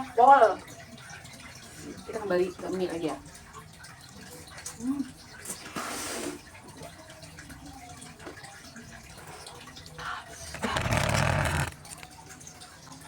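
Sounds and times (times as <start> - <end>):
slurping noodles: 10.3 - 12.1.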